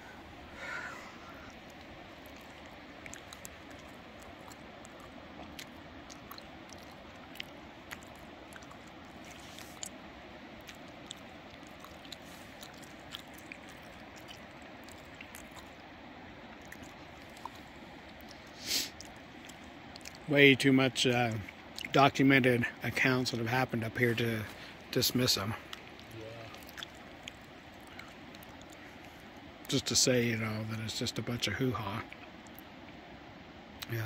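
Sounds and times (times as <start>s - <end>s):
background hiss: 0.0s - 34.0s
person chewing food: 0.7s - 20.3s, 25.6s - 29.7s.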